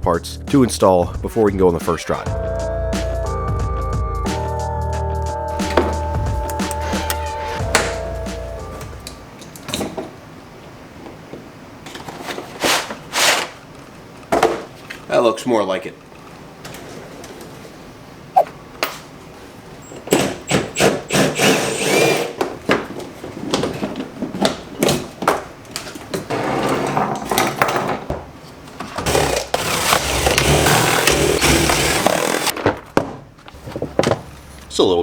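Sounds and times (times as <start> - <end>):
hand tools clicking and knocking: 5.6 - 8.0.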